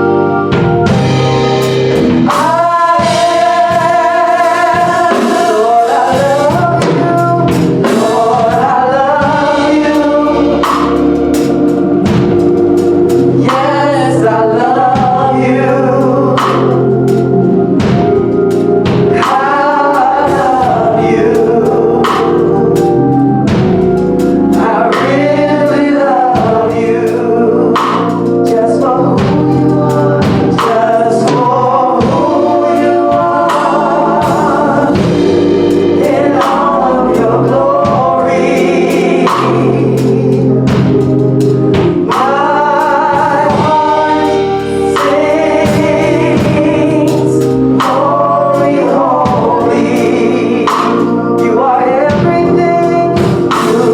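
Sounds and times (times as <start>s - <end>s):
gospel choir singing: 0.0s - 53.9s
low bass notes: 0.0s - 53.9s
percussion strikes: 0.5s - 15.5s, 27.8s - 52.6s.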